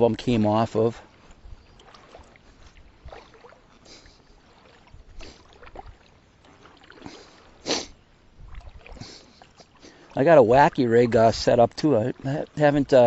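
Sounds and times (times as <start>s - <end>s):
soft water noise: 0.0s - 13.0s
light splashes and knocks: 1.1s - 7.6s, 8.4s - 10.2s
splash or swish: 1.8s - 9.9s.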